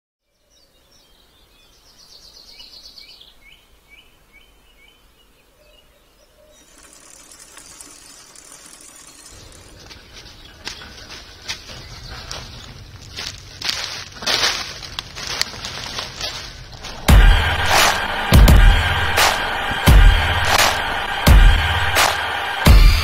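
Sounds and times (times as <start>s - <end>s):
songbird trilling and chirping: 0.2s - 13.4s
high hiss of outdoor ambience: 0.2s - 21.2s
low rumble: 15.6s - 23.0s.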